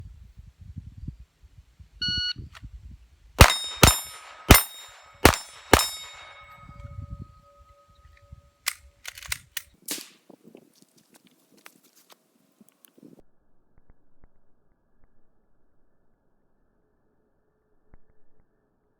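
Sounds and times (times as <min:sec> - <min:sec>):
pistol shots: 0:03.4 - 0:06.8, 0:09.9 - 0:10.2
ring of struck steel plate: 0:03.4 - 0:07.0.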